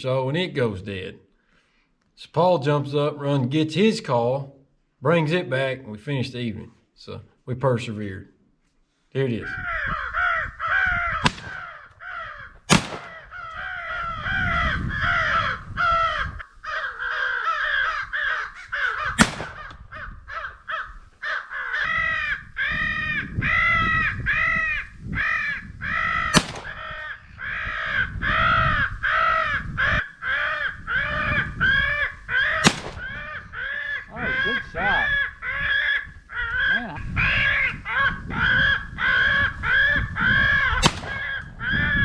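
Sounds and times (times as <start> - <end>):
crows cawing: 9.4 - 42.0
shotgun fire cracks: 11.2 - 11.8, 12.7 - 13.3, 19.2 - 19.8, 26.4 - 26.9, 32.6 - 33.3, 40.8 - 41.4.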